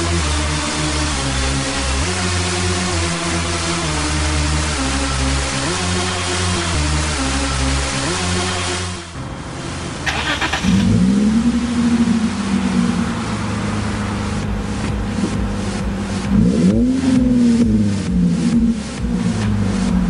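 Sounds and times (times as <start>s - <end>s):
car engine starting and idling: 0.0s - 20.0s
starter motor whir: 10.0s - 11.4s.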